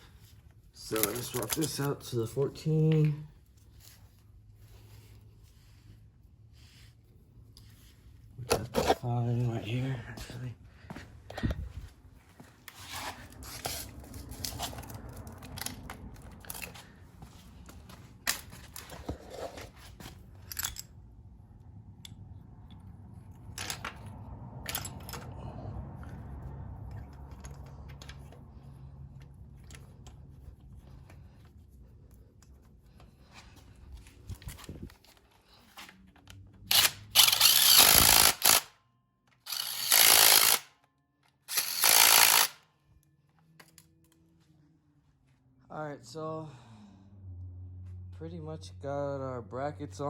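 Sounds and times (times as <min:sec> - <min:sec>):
power tool bursts: 0:36.7 - 0:38.7, 0:39.5 - 0:40.7, 0:41.5 - 0:42.6.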